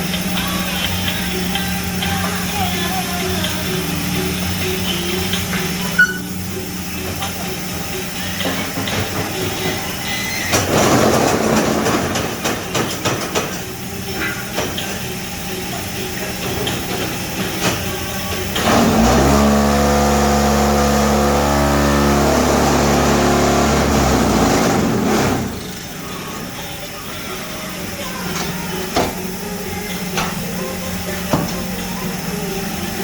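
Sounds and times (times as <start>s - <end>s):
loud steady machine hum: 0.0s - 33.0s
machine clattering and knocking: 7.0s - 19.4s, 21.9s - 26.0s.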